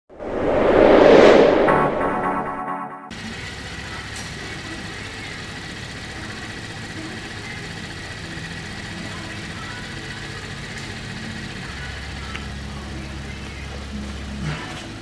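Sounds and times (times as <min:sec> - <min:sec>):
car engine idling: 0:03.1 - 0:15.0.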